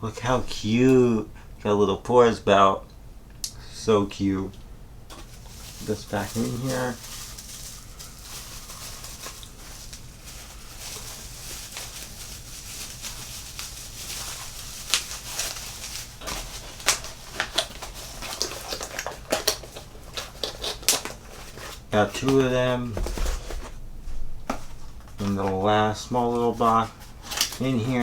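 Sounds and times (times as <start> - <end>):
packaging rustling: 5.1 - 28.0.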